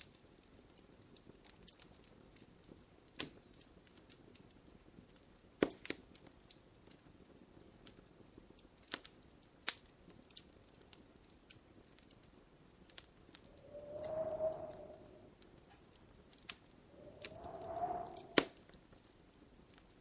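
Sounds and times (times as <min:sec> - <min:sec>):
wood fire crackling: 0:00.0 - 0:20.0
fire hiss: 0:13.4 - 0:15.4, 0:16.8 - 0:18.6.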